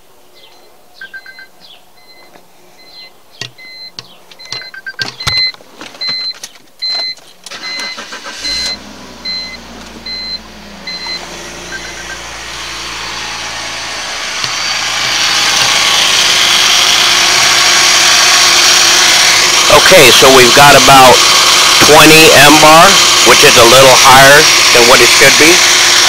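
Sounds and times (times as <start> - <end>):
warning chime beeps: 1.0 - 12.2
car engine cranking and idling: 3.4 - 26.0.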